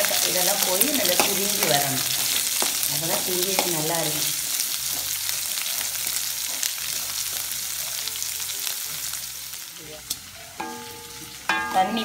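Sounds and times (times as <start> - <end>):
shallots sizzling in hot oil: 0.0 - 12.0
steel ladle stirring: 10.4 - 12.0.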